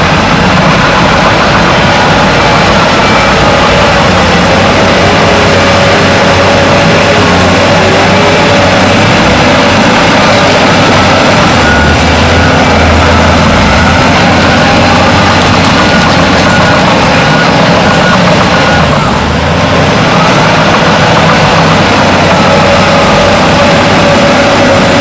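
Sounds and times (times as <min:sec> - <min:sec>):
heavy diesel engines running: 0:00.0 - 0:25.0.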